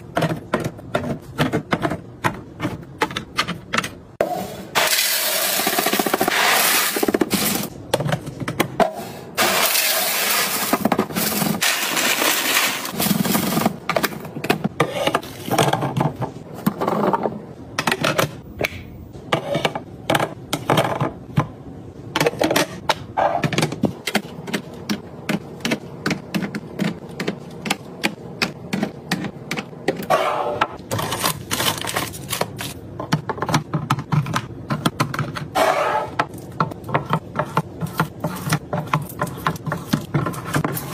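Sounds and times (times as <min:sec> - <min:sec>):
containers and lids clattering: 0:04.8 - 0:18.4.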